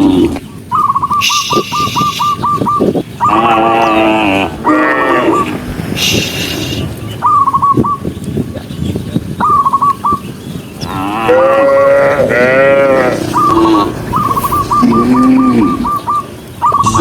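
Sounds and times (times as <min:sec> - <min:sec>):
bird calling short high notes: 0:00.8 - 0:04.2
cattle mooing: 0:03.2 - 0:05.7, 0:10.8 - 0:17.0.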